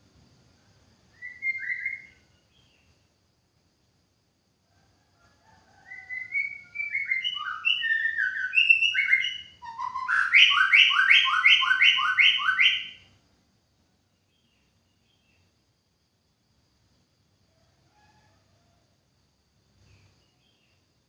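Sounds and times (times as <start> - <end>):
bird singing whistled notes: 1.1 - 2.9, 5.8 - 13.2.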